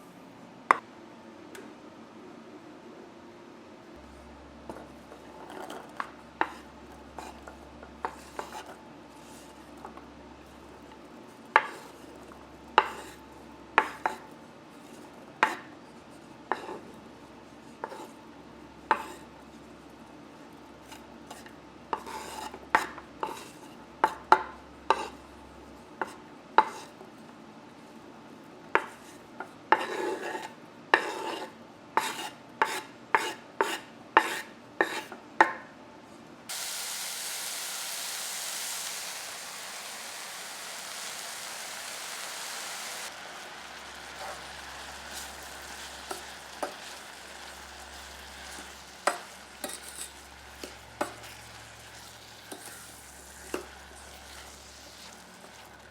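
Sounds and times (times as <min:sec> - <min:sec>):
food sizzling: 0:36.5 - 0:55.9.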